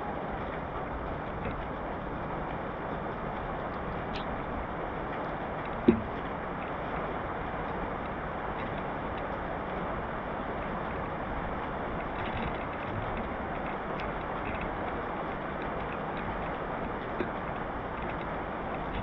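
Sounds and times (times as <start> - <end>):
heavy rain falling: 0.0 - 19.0
raindrops ticking: 0.0 - 19.0.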